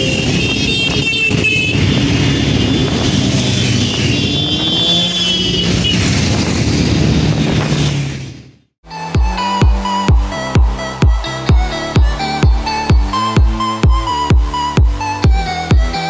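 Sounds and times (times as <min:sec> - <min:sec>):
motorcycle engines revving: 0:00.0 - 0:08.5
traffic noise: 0:00.0 - 0:16.0.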